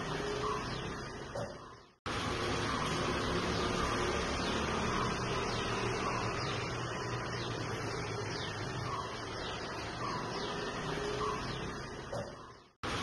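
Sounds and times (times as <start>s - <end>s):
faint bird chirps: 2.6s - 12.8s.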